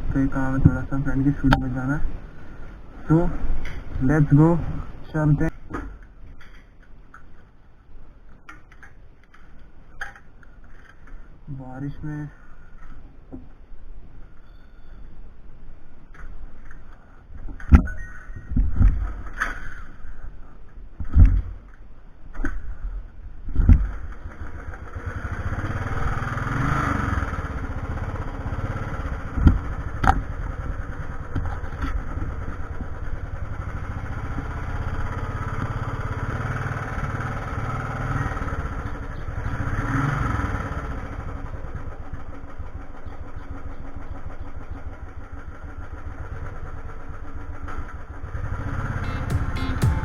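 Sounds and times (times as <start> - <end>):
motorcycle engine running: 23.8 - 50.0.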